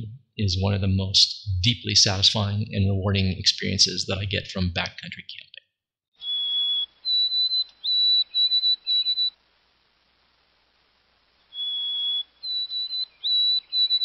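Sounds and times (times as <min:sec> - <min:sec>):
songbird whistled song: 0:06.2 - 0:09.4, 0:11.4 - 0:14.0.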